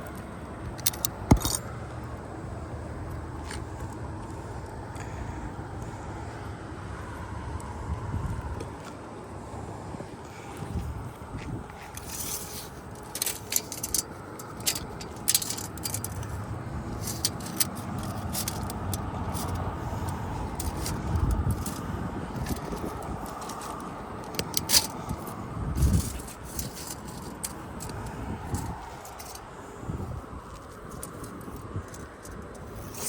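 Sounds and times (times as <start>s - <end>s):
low background rumble: 0.0s - 33.0s
scraping and rustling: 10.7s - 33.0s.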